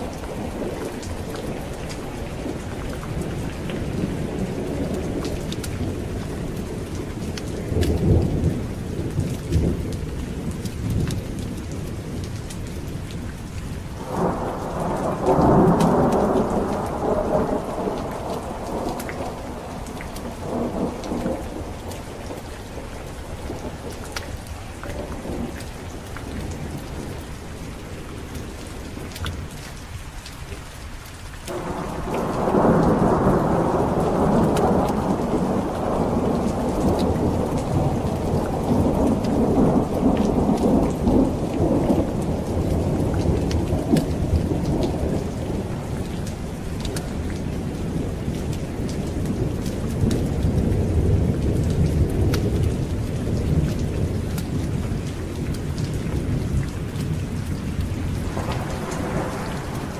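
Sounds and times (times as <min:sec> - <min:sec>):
heavy rain: 0:00.0 - 0:59.9
rolling thunder: 0:13.9 - 0:28.3, 0:31.5 - 0:59.9.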